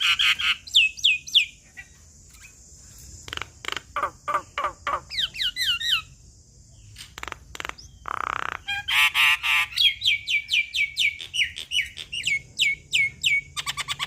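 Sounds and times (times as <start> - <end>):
bird whistling and rasping: 7.7 - 14.0.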